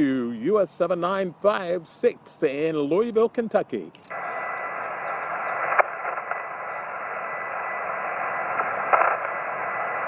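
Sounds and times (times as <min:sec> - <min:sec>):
radio static hiss: 0:00.0 - 0:10.0
sharp static crackle: 0:04.0 - 0:10.0.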